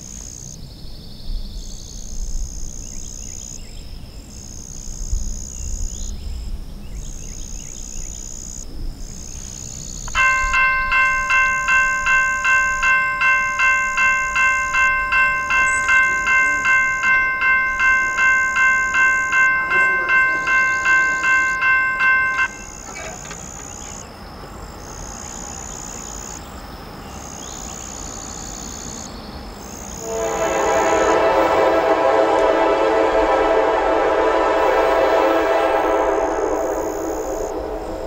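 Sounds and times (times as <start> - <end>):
freight train rumble: 2.0 - 38.0
railroad crossing bell dinging: 10.1 - 24.0, 29.7 - 38.0
locomotive multi-tone horn: 13.5 - 23.4, 30.0 - 38.0.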